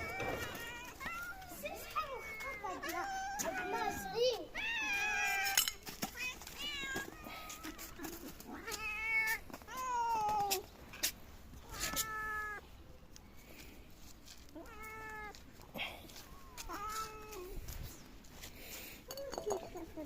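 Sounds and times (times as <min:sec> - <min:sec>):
cats meowing: 0:00.0 - 0:10.7, 0:11.5 - 0:12.7, 0:14.5 - 0:18.1.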